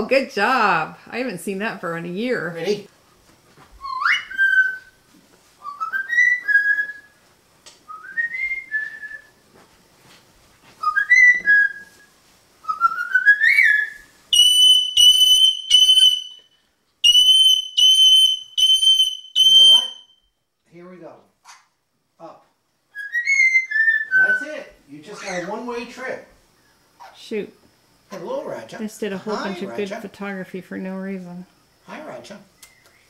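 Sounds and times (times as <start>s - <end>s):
parrot whistling: 3.8s - 5.0s, 5.6s - 7.1s, 10.8s - 12.0s, 12.6s - 20.2s, 22.9s - 25.5s
parrot mimicking alarm beeps: 18.6s - 20.2s.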